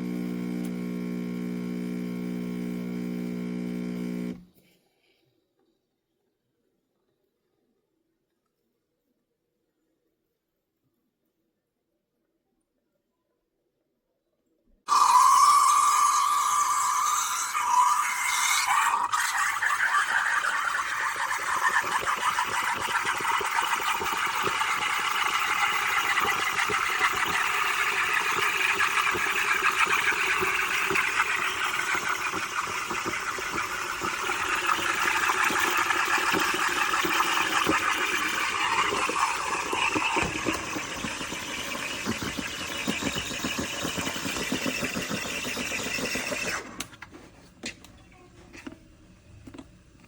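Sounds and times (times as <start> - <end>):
espresso machine buzzing: 0.0 - 4.5, 14.9 - 46.8.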